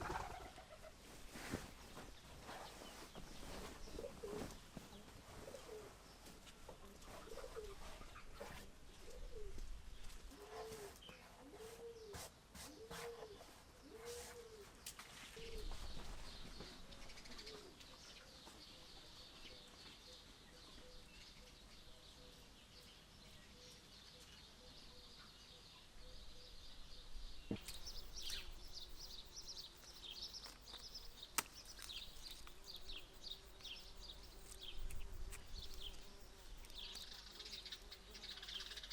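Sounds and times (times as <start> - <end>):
dove cooing: 0.0 - 1.0, 3.9 - 4.5, 5.4 - 6.0, 7.1 - 8.0, 9.0 - 9.7, 10.4 - 14.7
small birds chirping: 0.0 - 38.9.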